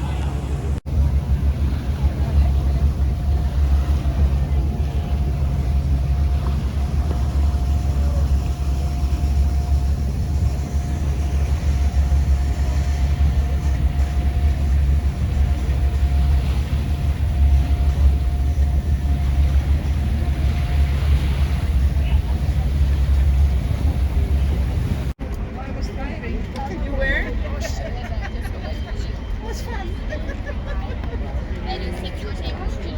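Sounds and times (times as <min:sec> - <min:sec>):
faint steady whine: 0:00.0 - 0:25.2
boat engine rumbling: 0:00.0 - 0:32.9.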